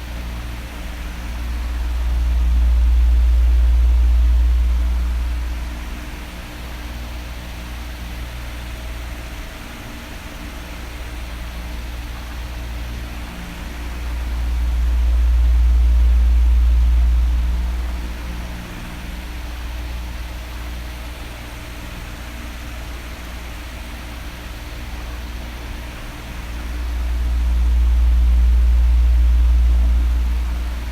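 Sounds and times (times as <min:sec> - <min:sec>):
electric fan blowing: 0:00.0 - 0:30.9.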